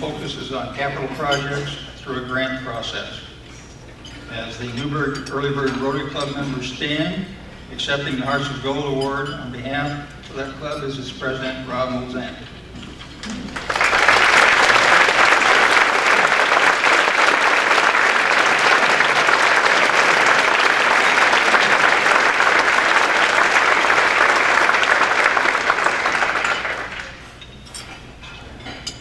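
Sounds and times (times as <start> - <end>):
audience applauding: 13.4 - 27.3.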